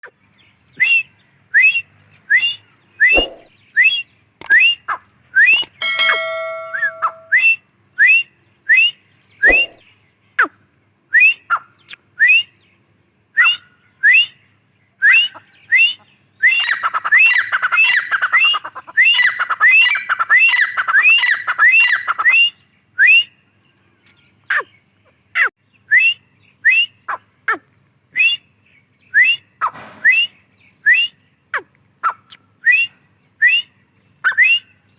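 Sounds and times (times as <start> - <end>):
bird calling rising whistled notes: 0.8 - 4.8, 5.4 - 9.8, 13.4 - 14.4, 15.0 - 18.1, 29.1 - 31.2, 32.6 - 34.8
steady whistle-like tone: 5.4 - 9.7.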